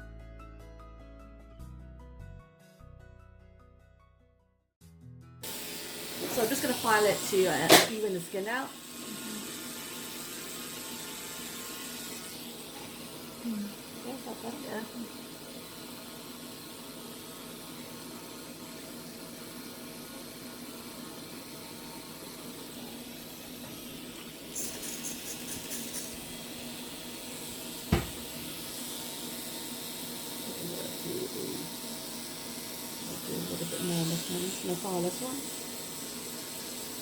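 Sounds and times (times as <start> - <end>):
file scraping skin: 24.5 - 26.3.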